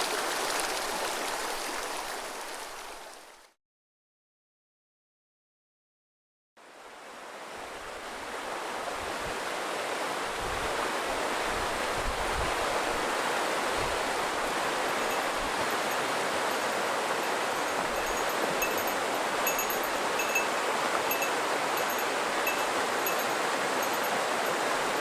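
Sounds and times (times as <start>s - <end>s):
river rushing over stones: 0.0s - 3.5s, 7.0s - 25.0s.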